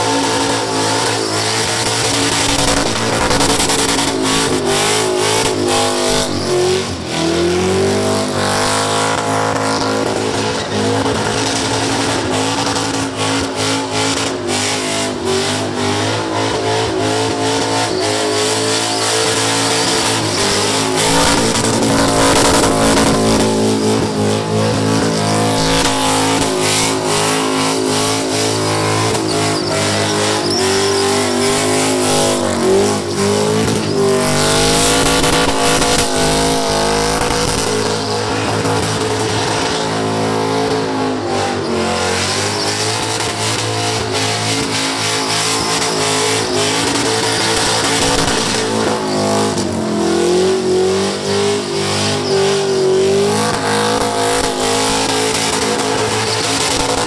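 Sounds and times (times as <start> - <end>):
engine at high revs: 0.0 - 57.0
tyres squealing while spinning: 25.1 - 31.6.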